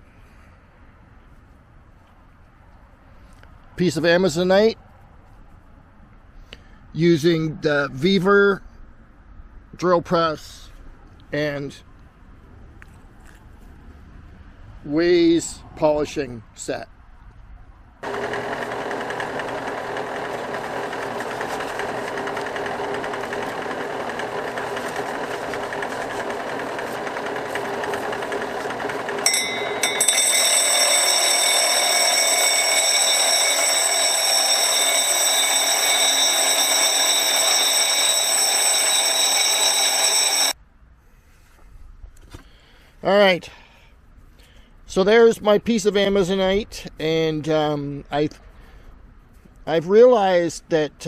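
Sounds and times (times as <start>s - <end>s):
drill press spinning: 18.0s - 40.6s.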